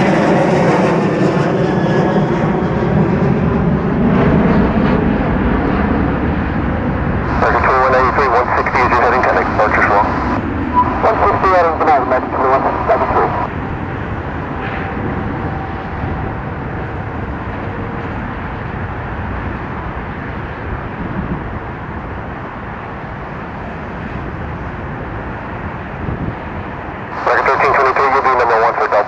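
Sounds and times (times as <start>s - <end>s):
jet engines roaring: 0.0s - 29.0s
faint steady whine: 7.2s - 13.5s, 27.1s - 29.0s.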